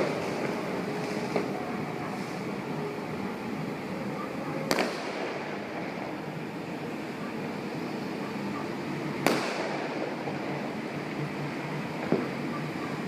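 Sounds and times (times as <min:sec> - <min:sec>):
steady background din: 0:00.0 - 0:13.0
sharp firework bangs: 0:04.6 - 0:06.2, 0:09.2 - 0:10.3.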